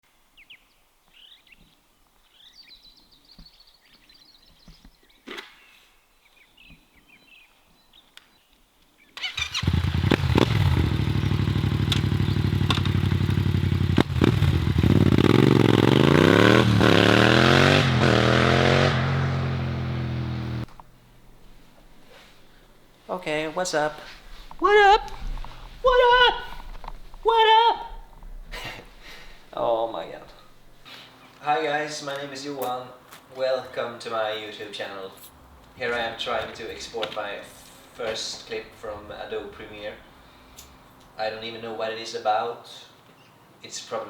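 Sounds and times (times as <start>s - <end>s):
faint birdsong: 0.1s - 9.6s, 10.8s - 12.7s, 19.4s - 25.9s, 26.6s - 41.8s, 42.7s - 43.7s
motorcycle engine idling and revving: 9.2s - 22.8s.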